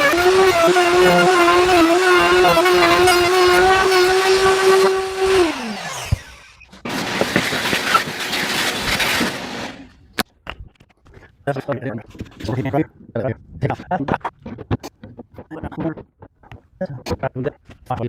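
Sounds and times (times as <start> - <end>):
electric router motor winding down: 0.0 - 9.9.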